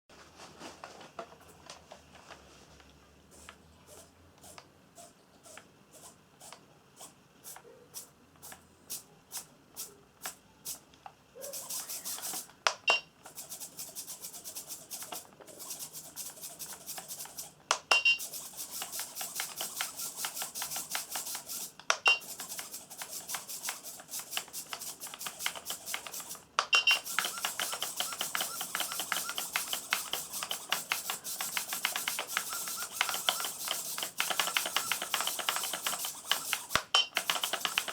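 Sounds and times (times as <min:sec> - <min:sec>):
small helicopter motor buzzing: 0:11.5 - 0:12.5, 0:18.2 - 0:37.9
steady ticking clicks: 0:18.2 - 0:37.9.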